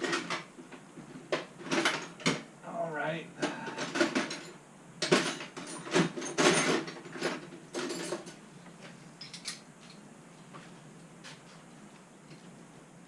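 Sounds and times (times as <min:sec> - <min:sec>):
tools clicking and knocking: 0:09.2 - 0:10.0.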